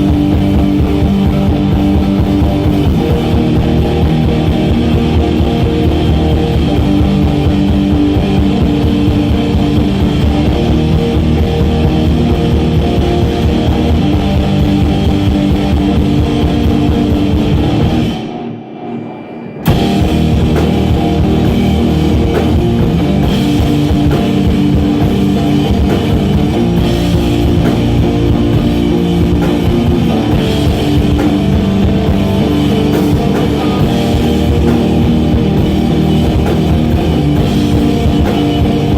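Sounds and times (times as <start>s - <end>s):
loud post-rock band playing: 0.0s - 38.9s.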